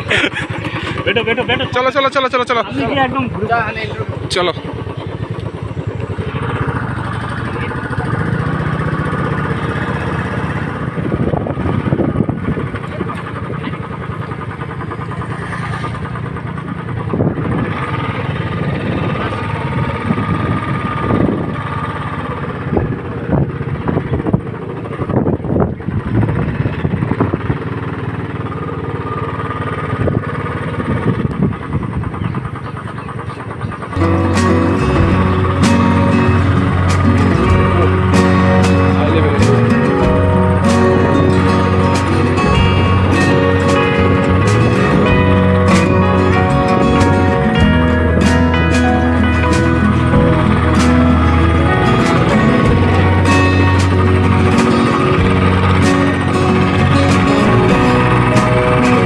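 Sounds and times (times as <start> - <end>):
motorcycle engine running: 0.0 - 59.0
wind buffeting microphone: 2.8 - 15.0.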